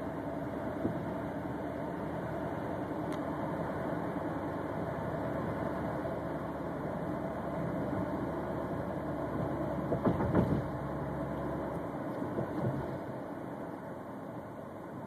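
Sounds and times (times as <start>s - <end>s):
car engine and road noise: 0.0s - 15.0s
sharp knocks: 9.9s - 10.7s.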